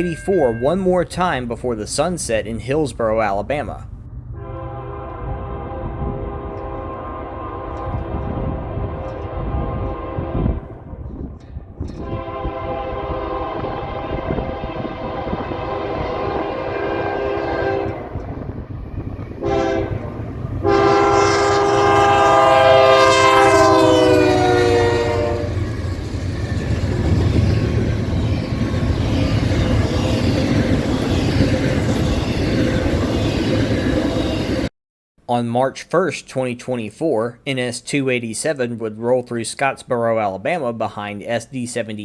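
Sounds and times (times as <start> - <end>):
train rumble and wheel clatter: 0.0 - 34.7
locomotive air horn: 4.4 - 10.8, 12.0 - 18.2, 19.4 - 25.7.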